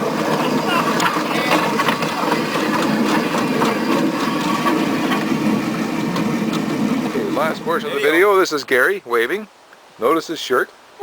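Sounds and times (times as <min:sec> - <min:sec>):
small electric tram clattering: 0:00.0 - 0:08.2.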